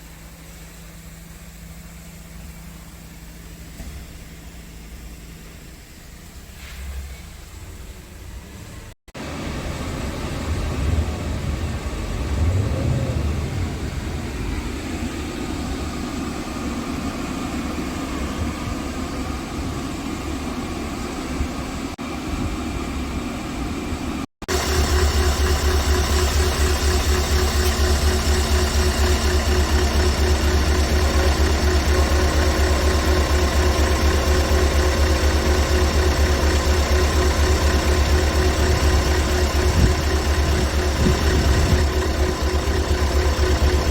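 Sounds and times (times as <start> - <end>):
diesel truck engine idling: 0.0 - 43.9
steady deep hum: 9.4 - 17.0.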